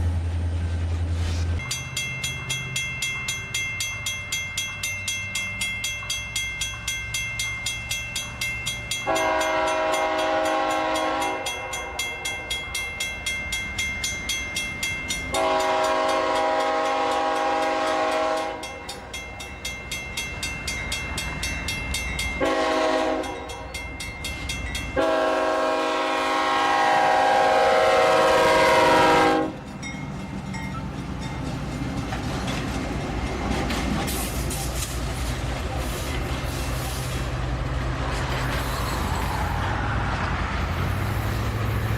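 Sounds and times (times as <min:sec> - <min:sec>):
train wheels clattering on rails: 0:00.9 - 0:26.2, 0:28.3 - 0:41.9
locomotive air horn blasts: 0:09.1 - 0:12.0, 0:15.3 - 0:18.7, 0:22.4 - 0:23.6, 0:25.0 - 0:29.6.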